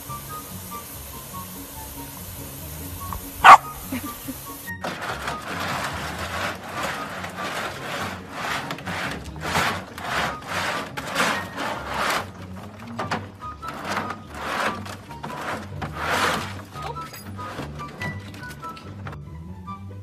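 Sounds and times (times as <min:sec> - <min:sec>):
puppy claws scratching plastic: 0:03.1 - 0:04.0, 0:04.7 - 0:19.0.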